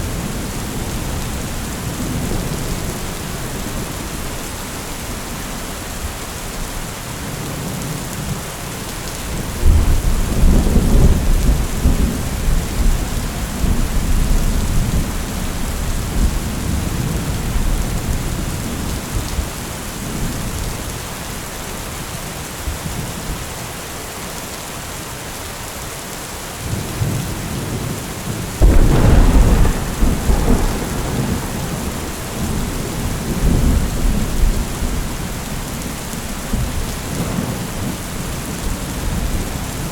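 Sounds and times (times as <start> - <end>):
steady rain: 0.0 - 39.9
thunder rumbling: 28.6 - 39.9.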